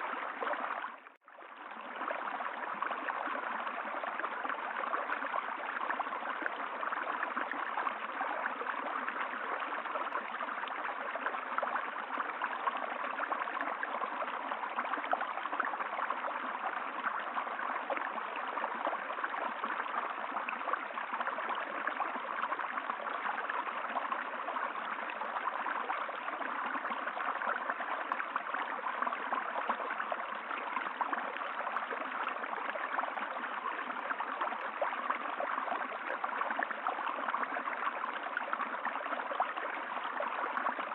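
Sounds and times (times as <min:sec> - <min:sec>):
stream water babbling: 0:00.0 - 0:40.9.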